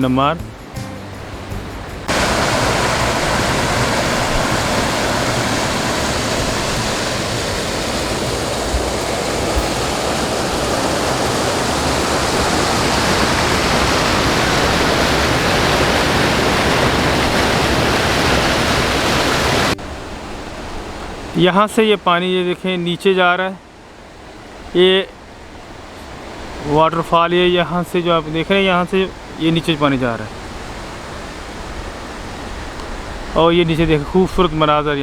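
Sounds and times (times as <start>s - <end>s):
water pouring down waterfall: 2.0s - 20.2s.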